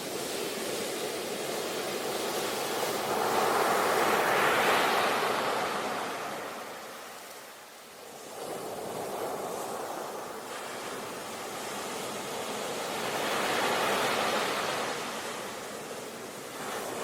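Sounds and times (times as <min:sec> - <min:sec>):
surf wave rushing: 0:01.3 - 0:07.2.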